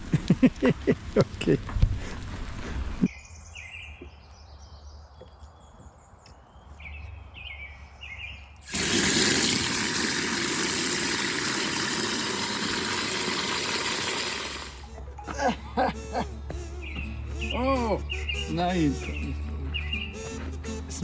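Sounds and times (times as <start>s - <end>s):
small birds chirping: 3.0s - 8.6s, 16.3s - 21.0s.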